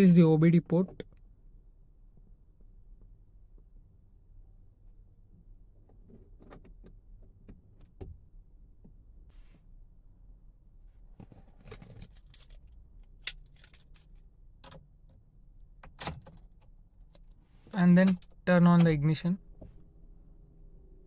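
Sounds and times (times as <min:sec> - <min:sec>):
keys jingling: 0:11.7 - 0:14.2, 0:17.0 - 0:19.2
handling clicks and knocks: 0:17.7 - 0:19.2.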